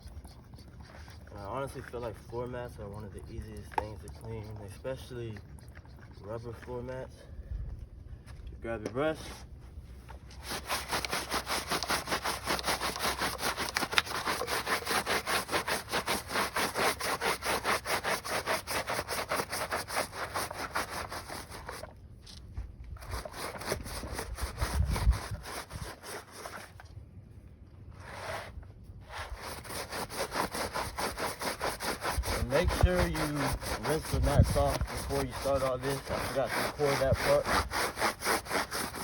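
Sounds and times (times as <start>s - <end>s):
brush scrubbing rubber mats: 0.0s - 7.2s, 9.1s - 26.8s, 28.0s - 39.0s.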